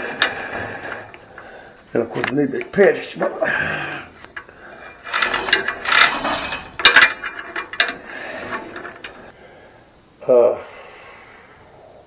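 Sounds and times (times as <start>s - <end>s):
metal clanking and scraping: 0.0s - 2.6s, 3.3s - 9.3s.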